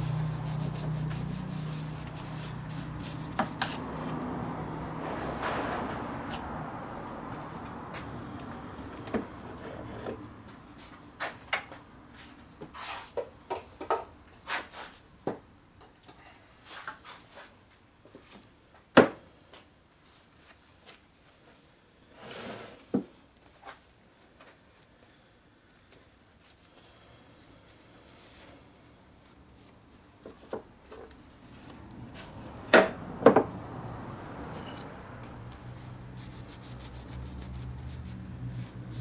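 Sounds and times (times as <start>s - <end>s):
rubbing: 0.0s - 4.2s, 35.8s - 39.0s.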